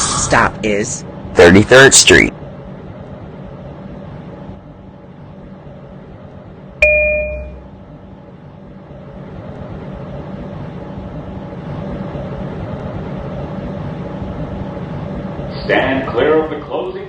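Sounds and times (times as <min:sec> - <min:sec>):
low hum of stopped train: 0:00.0 - 0:17.0
two-tone electronic chime: 0:06.8 - 0:07.6.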